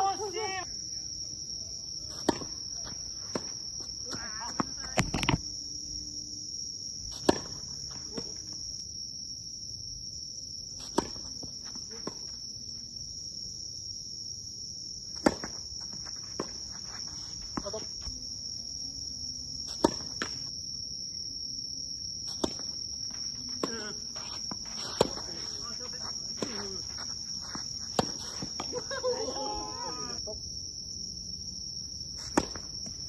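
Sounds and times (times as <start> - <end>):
high insect drone: 0.0 - 33.0
tennis balls struck by rackets: 2.1 - 5.4, 7.1 - 8.6, 10.8 - 12.4, 15.1 - 16.8, 19.6 - 20.5, 22.3 - 28.9, 32.2 - 33.0.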